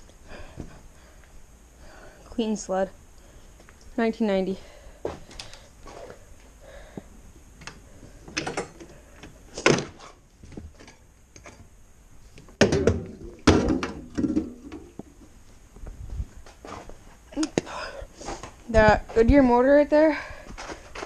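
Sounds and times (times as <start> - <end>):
knocks and clunks: 12.6 - 14.9.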